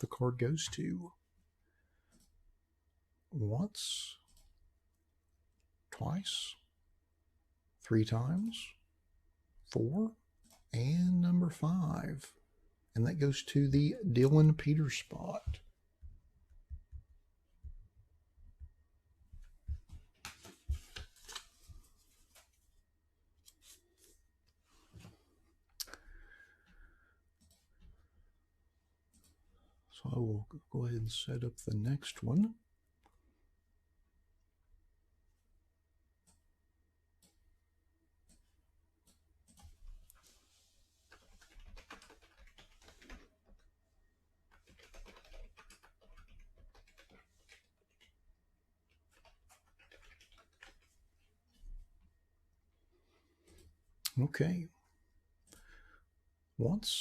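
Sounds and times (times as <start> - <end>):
faint keyboard typing: 1.9 - 2.4, 3.8 - 4.7, 13.4 - 22.7, 23.4 - 28.3, 29.0 - 29.8, 37.1 - 37.5, 38.2 - 52.1, 53.0 - 54.3, 55.4 - 56.0.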